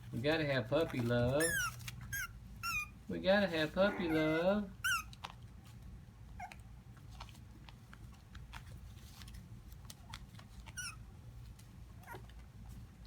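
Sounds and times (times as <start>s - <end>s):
puppy whining: 1.4s - 5.4s, 6.3s - 6.7s, 10.1s - 11.1s, 12.0s - 12.4s.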